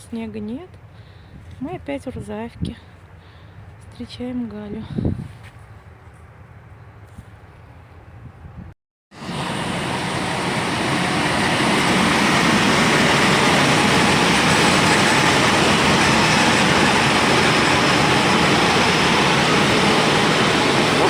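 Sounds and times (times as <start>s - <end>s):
train wheels and carriages: 9.3s - 21.0s.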